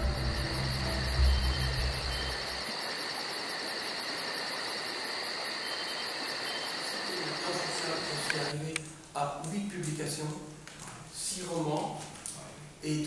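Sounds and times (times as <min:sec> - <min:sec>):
low rumble: 0:00.0 - 0:02.6
high even chirping pulse: 0:00.0 - 0:02.9
steady high whine: 0:00.0 - 0:03.0
steady hiss: 0:00.0 - 0:08.8.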